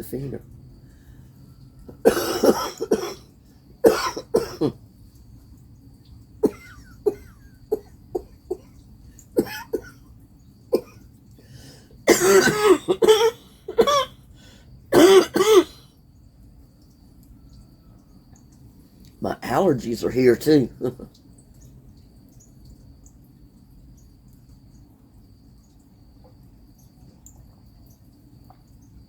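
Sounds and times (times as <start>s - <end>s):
woman clearing her throat: 2.0s - 3.2s, 3.9s - 4.8s, 6.4s - 8.7s, 9.4s - 10.0s, 10.8s - 11.0s, 12.1s - 14.1s, 14.9s - 15.8s
woman coughing: 2.0s - 3.2s, 3.8s - 4.8s, 6.4s - 8.7s, 9.4s - 10.0s, 10.7s - 11.0s, 12.1s - 14.1s, 14.9s - 15.8s.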